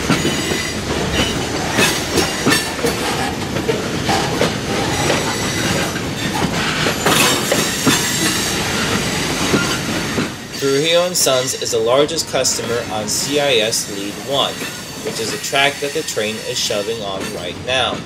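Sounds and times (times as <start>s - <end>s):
knocks and clanks: 0.0s - 10.4s
steel wheels clacking over rail joints: 0.0s - 18.0s
high wheel squeal: 4.0s - 18.0s.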